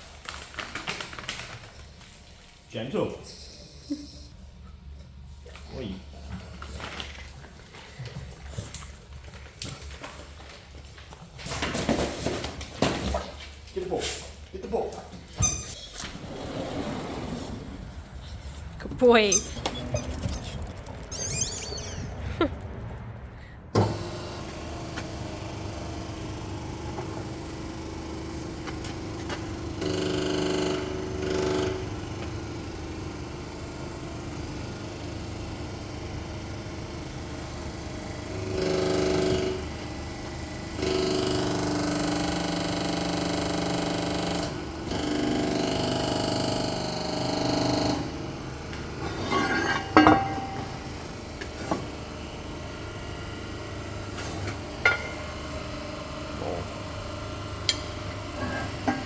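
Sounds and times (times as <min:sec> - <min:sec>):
hydraulic press pump running: 0:23.7 - 0:59.0.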